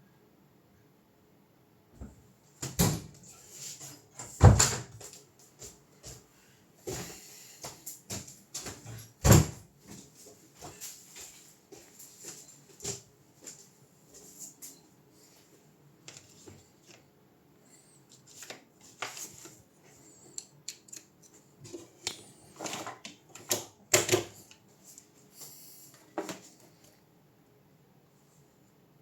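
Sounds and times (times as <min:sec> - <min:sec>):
clicks and knocks of small parts: 0:20.3 - 0:21.3.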